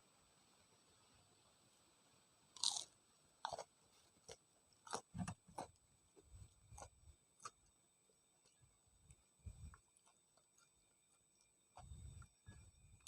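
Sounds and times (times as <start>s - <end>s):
biting into fried food: 2.6s - 5.8s.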